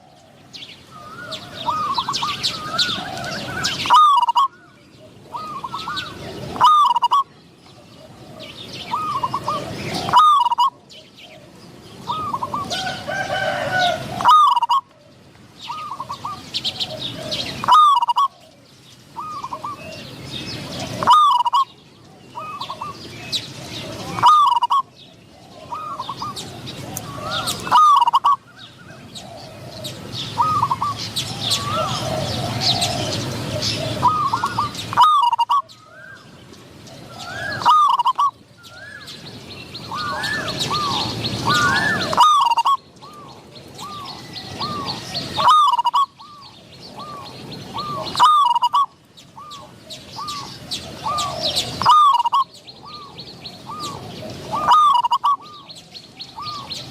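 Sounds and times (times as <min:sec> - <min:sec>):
doves cooing: 0:00.0 - 0:56.9
small birds chirping faintly: 0:00.0 - 0:56.9.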